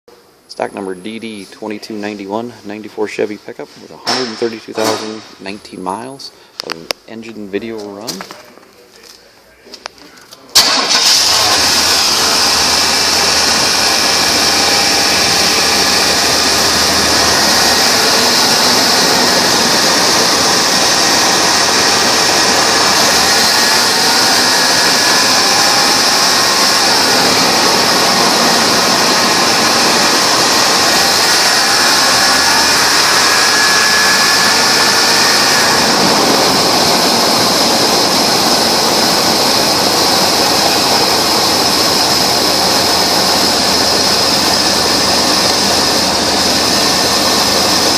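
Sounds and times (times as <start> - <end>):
pickup truck engine running: 10.6 - 47.9.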